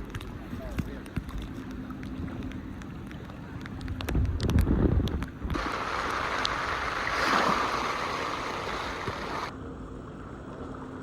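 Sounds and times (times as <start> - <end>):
sea waves washing in: 5.5 - 11.0.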